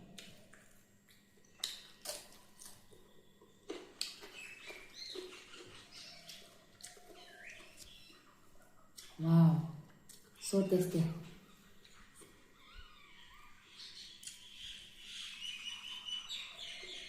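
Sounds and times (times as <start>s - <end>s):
person chewing food: 0.0s - 9.2s, 9.9s - 10.4s
lip clicks: 0.1s - 2.8s, 14.2s - 14.4s.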